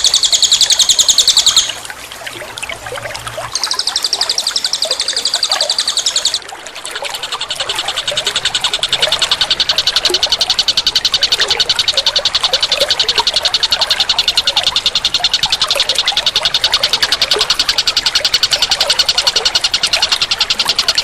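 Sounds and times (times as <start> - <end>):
dense high pulsing calls: 0.0 - 21.0.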